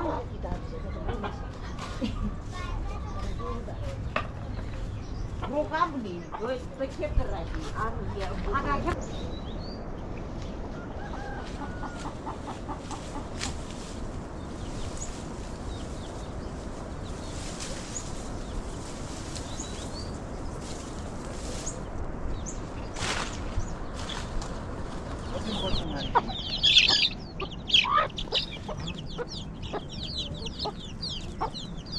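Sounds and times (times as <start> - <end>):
chickens clucking: 0.0 - 8.9, 10.0 - 21.9, 22.6 - 31.9
high bird chirps: 25.5 - 31.9.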